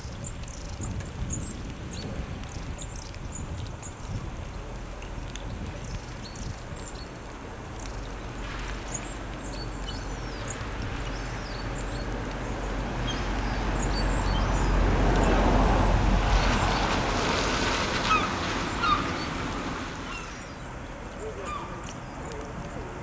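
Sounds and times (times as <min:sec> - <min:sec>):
wind on microphone: 0:00.0 - 0:07.4, 0:08.2 - 0:20.6
birds chirping: 0:18.0 - 0:23.0.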